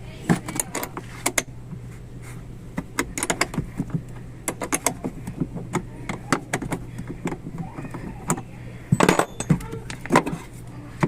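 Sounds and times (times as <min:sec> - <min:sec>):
steady low hum: 0:00.0 - 0:11.0
metal parts clicking and clinking: 0:08.2 - 0:10.5.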